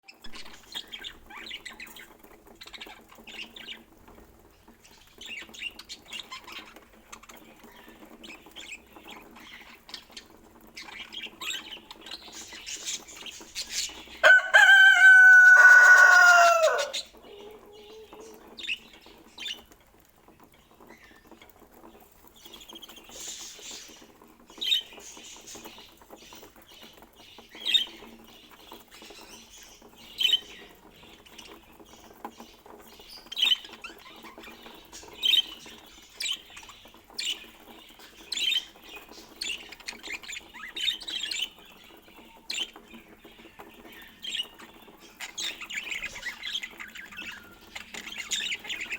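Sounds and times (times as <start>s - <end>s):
budgerigars chirping: 7.7s - 17.2s
drawn-out bird call: 12.2s - 18.9s.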